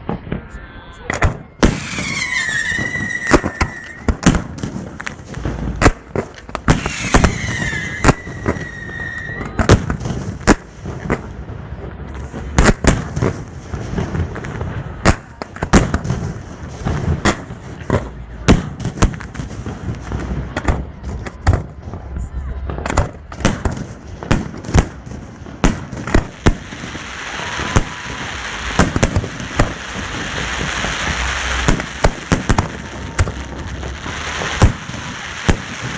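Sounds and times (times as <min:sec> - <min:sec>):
fireworks bangs: 0:00.0 - 0:35.9
firework high whistle: 0:00.3 - 0:04.2, 0:06.7 - 0:09.8, 0:26.4 - 0:35.9.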